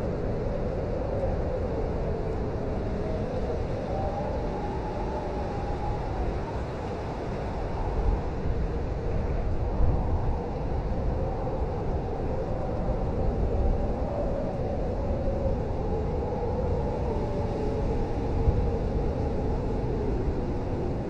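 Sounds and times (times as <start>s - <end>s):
blizzard wind rumble: 0.0s - 21.0s.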